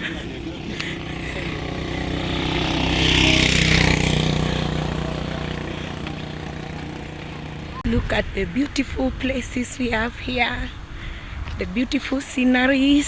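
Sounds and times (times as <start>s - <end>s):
vehicle engine running: 0.0s - 8.8s.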